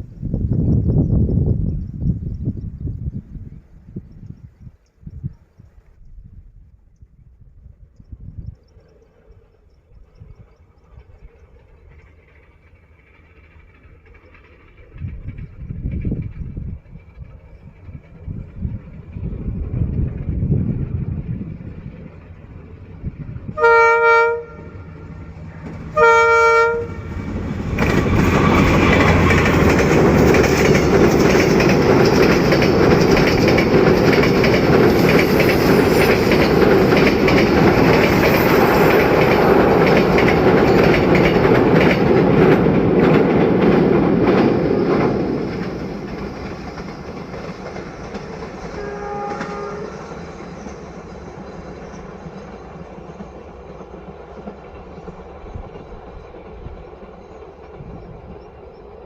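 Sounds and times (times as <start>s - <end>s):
train wheels clacking over rail joints: 10.1s - 59.0s
locomotive horn blasts: 23.5s - 25.3s, 25.9s - 27.2s, 48.7s - 50.2s.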